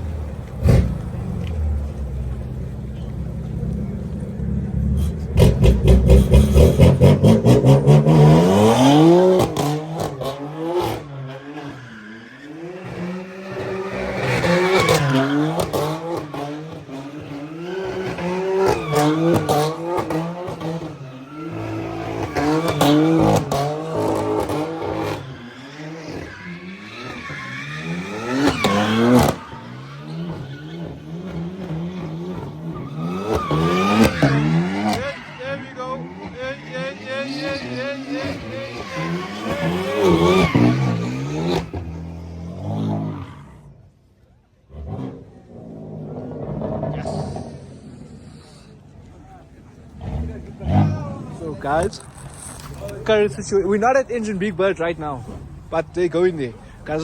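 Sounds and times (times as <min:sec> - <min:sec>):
car engine revving hard: 0:05.0 - 0:11.8, 0:12.4 - 0:43.7, 0:49.8 - 0:57.0
tyre squeal: 0:11.1 - 0:42.0, 0:50.0 - 0:55.7.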